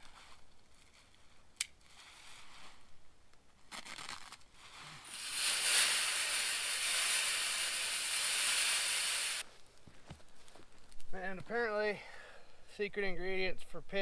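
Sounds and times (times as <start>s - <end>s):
corn kernels pouring: 5.0s - 9.5s
handling rustle: 9.5s - 11.6s.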